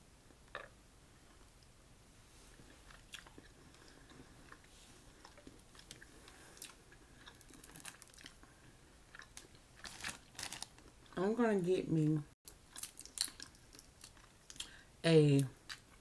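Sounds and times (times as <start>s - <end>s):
wet chewing: 2.6s - 8.5s.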